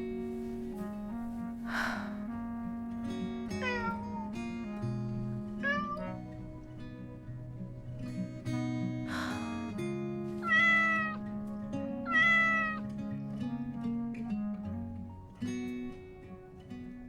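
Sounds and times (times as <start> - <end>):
plucked guitar music: 0.0 - 17.0
cat meowing: 3.6 - 4.4, 5.6 - 6.6, 10.4 - 11.2, 12.1 - 12.8.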